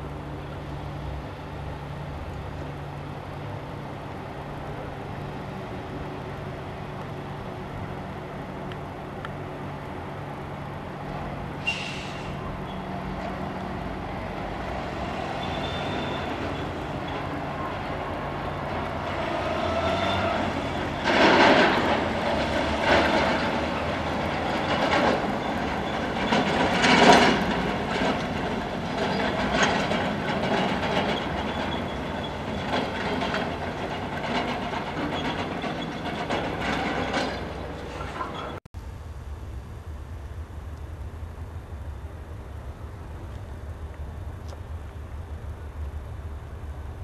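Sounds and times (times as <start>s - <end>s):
train engine hum: 0.0s - 47.0s
wheels clacking over rail joints: 5.8s - 38.6s.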